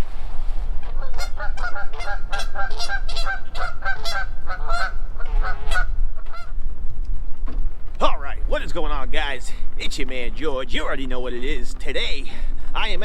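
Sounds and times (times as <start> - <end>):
wind rumble on microphone: 0.0 - 13.0
goose honking: 0.8 - 6.6.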